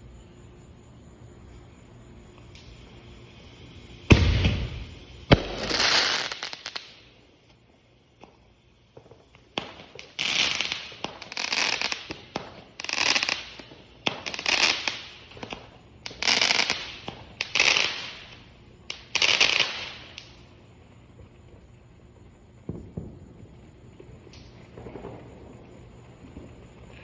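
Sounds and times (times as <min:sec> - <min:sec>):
fireworks popping and crackling: 0:03.6 - 0:27.0.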